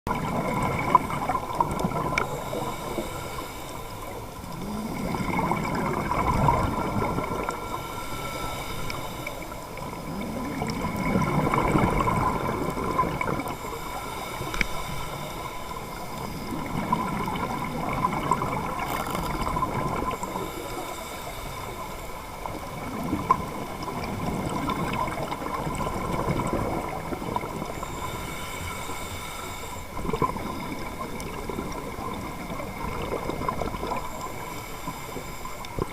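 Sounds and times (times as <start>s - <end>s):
gurgling bubbles: 0.1s - 28.3s, 29.8s - 35.9s
diver breathing through regulator: 2.0s - 6.0s, 6.7s - 12.4s, 13.0s - 17.7s, 20.0s - 22.2s, 27.6s - 31.1s.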